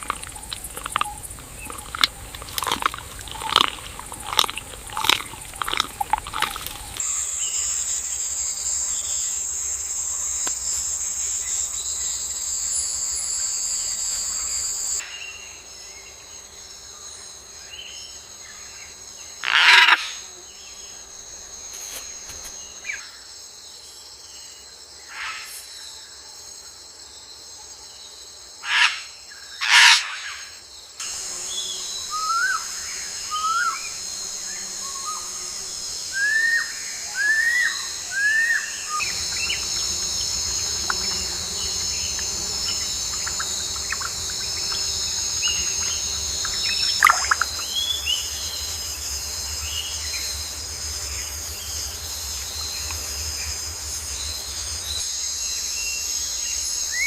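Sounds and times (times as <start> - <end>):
high-pitched insect chorus: 0.0 - 57.0
loud sweeping bird calls: 45.4 - 48.4.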